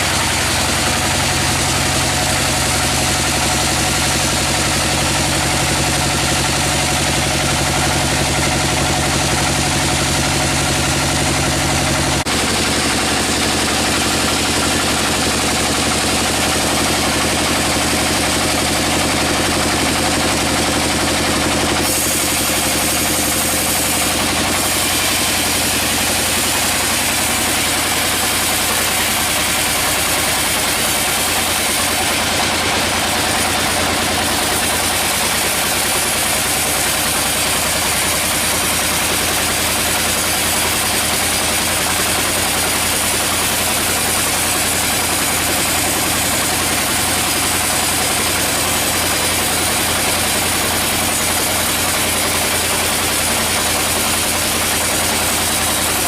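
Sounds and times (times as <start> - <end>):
sawmill machinery humming: 0.0 - 56.0.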